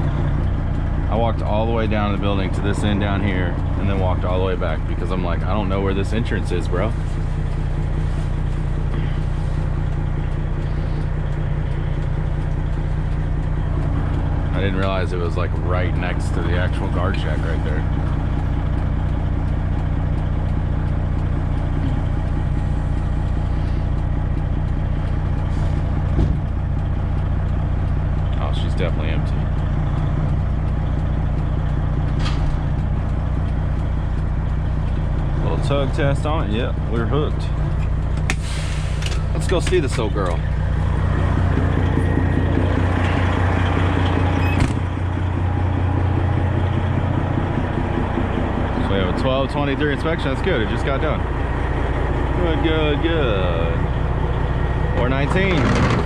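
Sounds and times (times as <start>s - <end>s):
diesel truck engine idling: 0.0s - 56.0s
thump: 26.2s - 26.4s.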